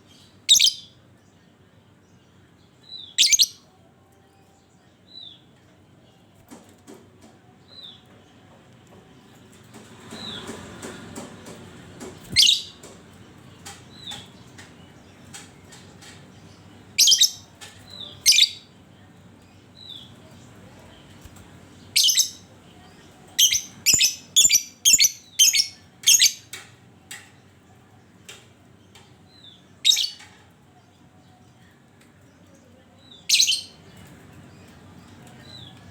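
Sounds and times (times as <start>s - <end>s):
bird chirps: 0.5s - 1.0s, 3.0s - 3.6s, 12.3s - 12.8s, 17.0s - 17.5s, 23.4s - 26.4s.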